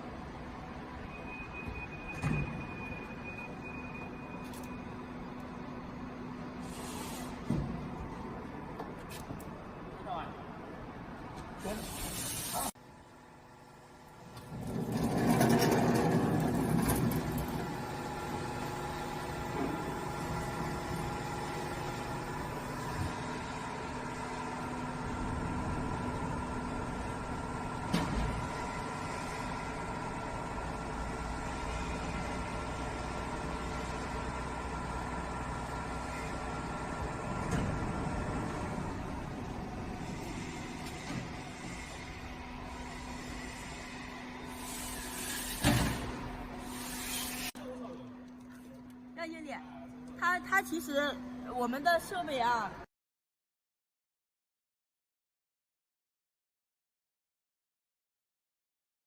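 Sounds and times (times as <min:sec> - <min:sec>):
factory machinery humming: 0:09.6 - 0:52.8.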